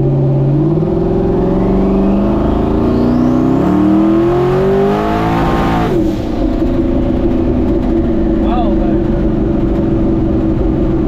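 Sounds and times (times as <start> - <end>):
pickup truck engine accelerating: 0.0 - 11.0
faint rising turbo whistle: 1.1 - 4.2.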